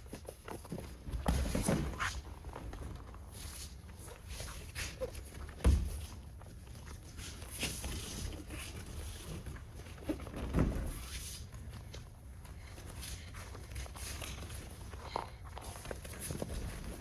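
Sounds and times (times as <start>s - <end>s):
bodies thudding on mats: 0.8s - 2.9s, 5.5s - 6.2s, 10.1s - 11.2s.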